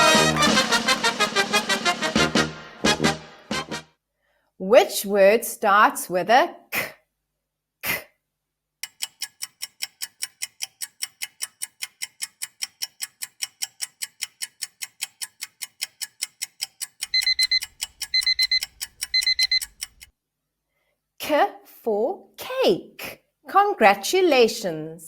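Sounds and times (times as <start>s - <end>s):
clock ticking fast: 8.8s - 20.1s
alarm clock beeps: 17.0s - 20.0s.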